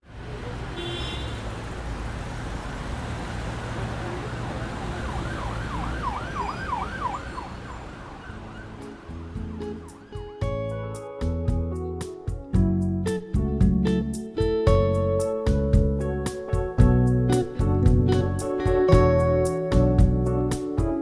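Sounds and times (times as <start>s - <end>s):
traffic rumble: 0.0s - 11.9s
siren sweeping up and down: 4.2s - 9.2s
low bass notes: 9.0s - 21.0s.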